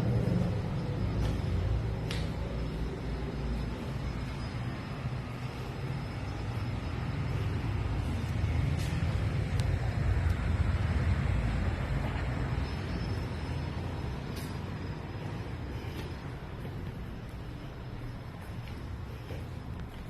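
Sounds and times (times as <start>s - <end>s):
vehicle passing rumble: 0.0s - 18.1s.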